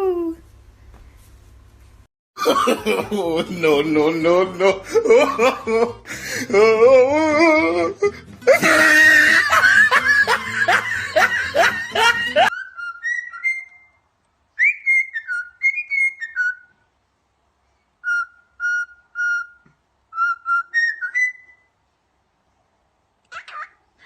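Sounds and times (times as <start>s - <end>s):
clear whistled notes: 12.5s - 14.0s, 20.2s - 21.7s.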